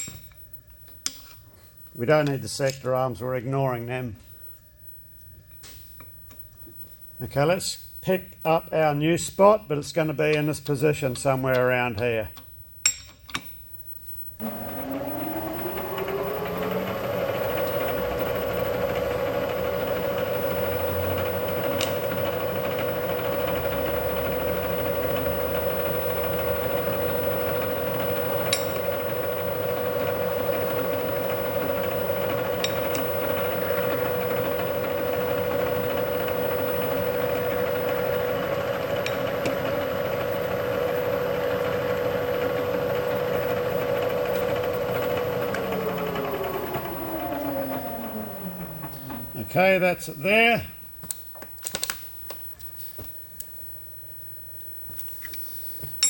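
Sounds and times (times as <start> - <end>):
electric motor running up: 14.4 - 49.6.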